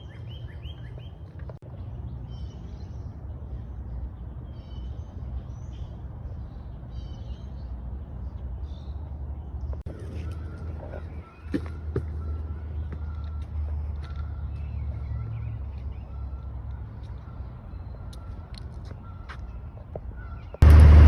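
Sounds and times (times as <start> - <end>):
birds chirping: 0.0 - 21.0
low rumble: 20.6 - 21.0.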